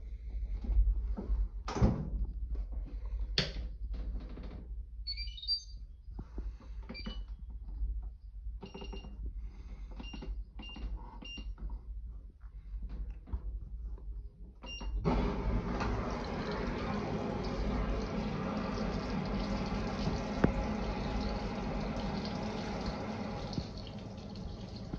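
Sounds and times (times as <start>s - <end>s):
washing machine panel beeps: 5.1s - 5.8s, 6.9s - 7.3s, 8.6s - 9.2s, 10.0s - 11.5s, 14.6s - 16.9s.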